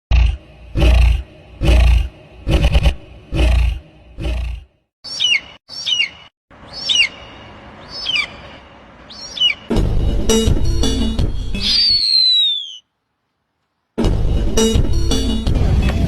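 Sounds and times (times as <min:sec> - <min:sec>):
shrill falling bird calls: 0:05.0 - 0:09.7, 0:11.6 - 0:13.0
bass-boosted bird screams: 0:07.8 - 0:08.4, 0:09.1 - 0:09.7, 0:11.6 - 0:12.8.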